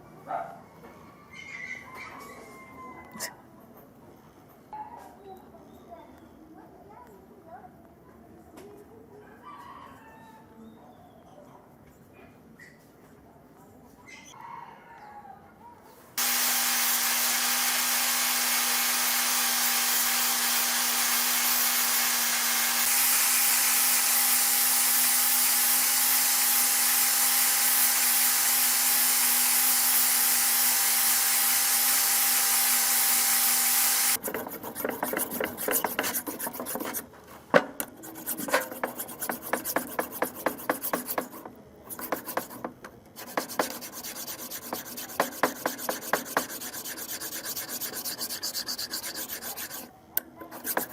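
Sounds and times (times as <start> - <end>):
power tool humming: 16.2 - 34.2
hand scraping and rubbing: 34.1 - 50.9.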